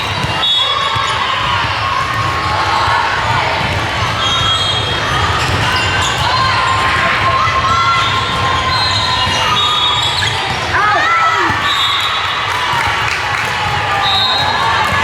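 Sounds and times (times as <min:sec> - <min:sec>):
sneakers squeaking on court: 0:03.7 - 0:06.4.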